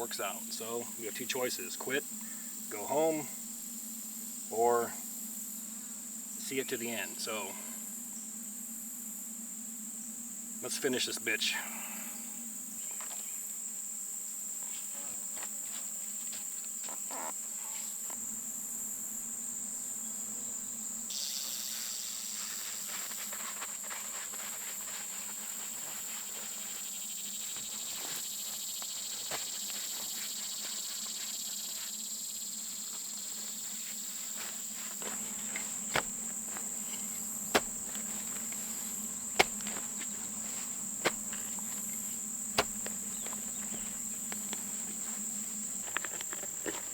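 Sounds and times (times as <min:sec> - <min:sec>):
insects chirring: 0:00.0 - 0:46.9
sharp knocks: 0:35.0 - 0:38.7, 0:39.4 - 0:40.0, 0:42.6 - 0:44.0.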